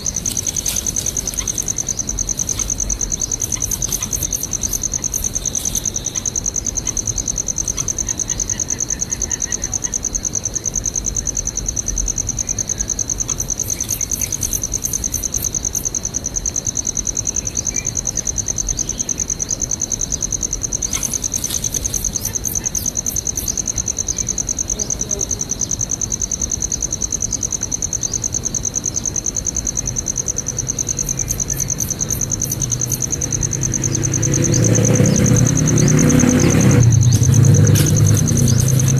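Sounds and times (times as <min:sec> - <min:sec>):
sharp high clicking: 0:00.0 - 0:08.1, 0:20.8 - 0:23.0, 0:31.3 - 0:38.9
insect chorus trilling: 0:00.0 - 0:38.9.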